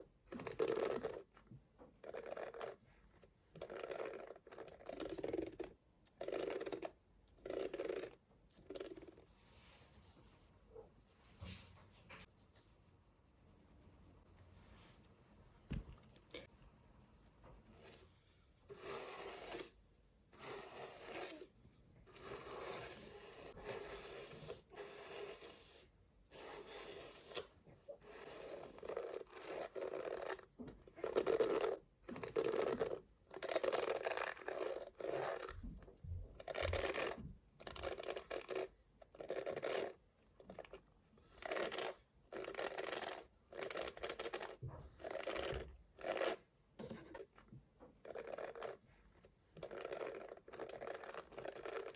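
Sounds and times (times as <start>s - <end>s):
hairbrush scratchy strokes: 16.9s - 21.5s, 22.1s - 30.4s.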